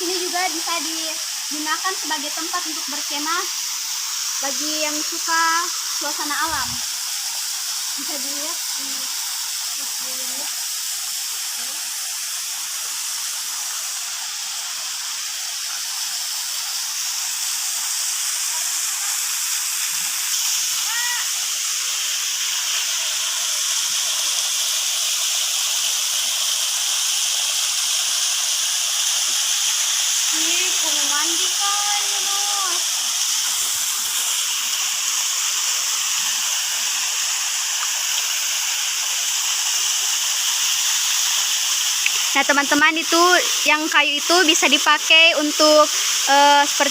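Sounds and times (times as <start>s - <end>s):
waterfall rushing: 17.1s - 46.9s.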